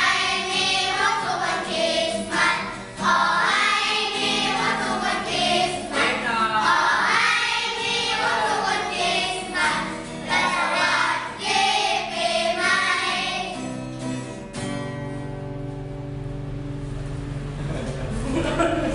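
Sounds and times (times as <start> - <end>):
children singing: 0.0 - 13.7.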